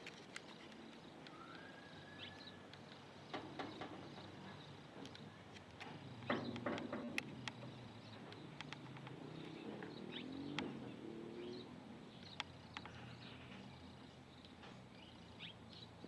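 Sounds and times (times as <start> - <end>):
faint bird chirps: 0.4 - 4.8
sharp ticks: 5.1 - 10.7.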